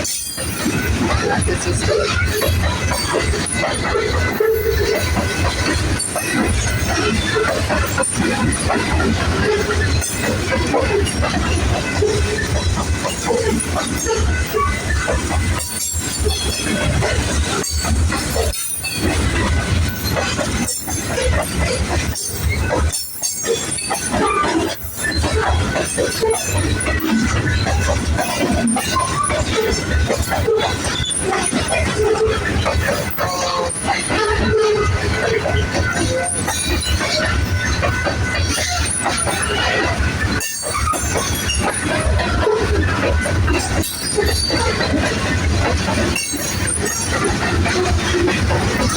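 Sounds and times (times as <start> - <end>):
train wheels rumbling and clattering: 0.0 - 48.9.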